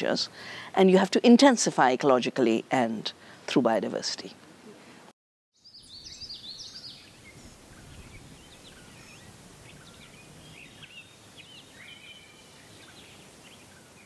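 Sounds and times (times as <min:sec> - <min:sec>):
small birds chirping and whistling: 0:05.6 - 0:14.0.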